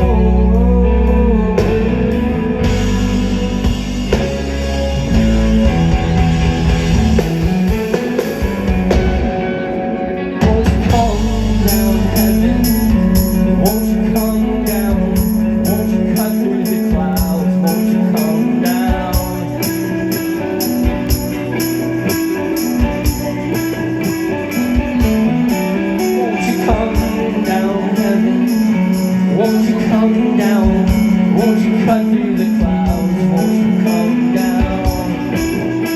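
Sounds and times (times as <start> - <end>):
deep bass: 0.0 - 35.9
electric guitar notes: 0.0 - 35.9
jingling tambourine beat: 10.9 - 35.9.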